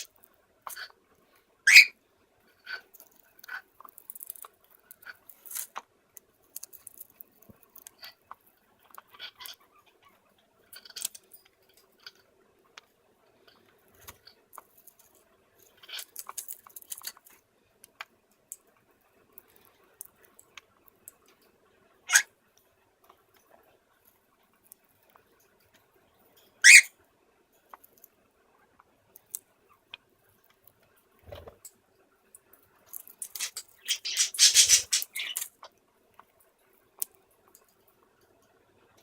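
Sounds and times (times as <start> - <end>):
bird cracking seeds in beak: 33.0 - 35.5.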